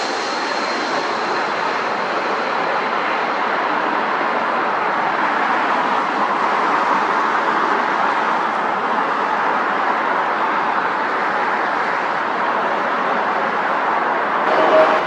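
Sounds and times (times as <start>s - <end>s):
jet engines rushing: 0.0s - 9.0s, 14.3s - 15.0s.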